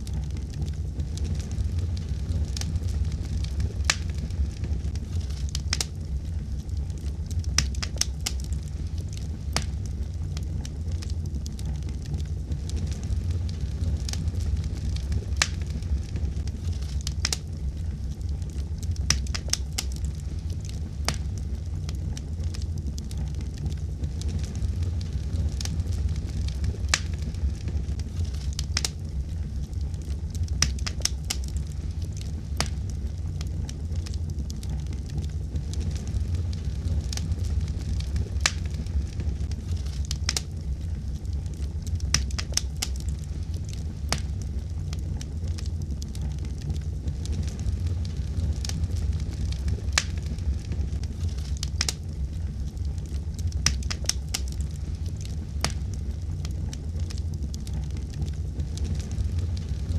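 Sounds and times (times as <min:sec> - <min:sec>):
wood fire crackling in fireplace: 0:00.0 - 0:59.9.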